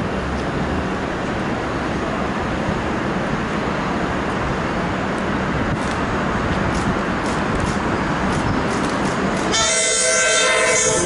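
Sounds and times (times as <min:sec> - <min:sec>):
electric train wheels on rails: 0:00.0 - 0:11.0.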